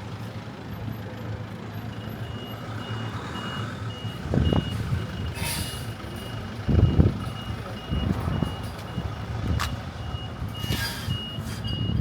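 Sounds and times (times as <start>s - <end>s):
reversing alarm beeping: 1.9s - 12.0s.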